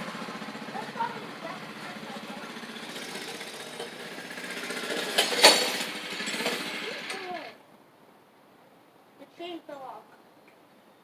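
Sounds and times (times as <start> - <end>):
small engine running: 0.0 - 7.6
sharp clack: 3.0 - 7.3.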